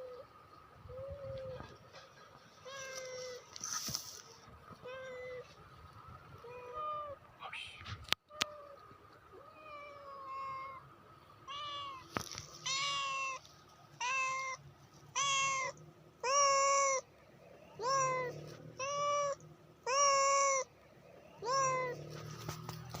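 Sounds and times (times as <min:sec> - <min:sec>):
cat meowing: 0:09.4 - 0:10.8, 0:11.5 - 0:13.4, 0:14.0 - 0:17.0, 0:17.8 - 0:20.7, 0:21.4 - 0:22.2.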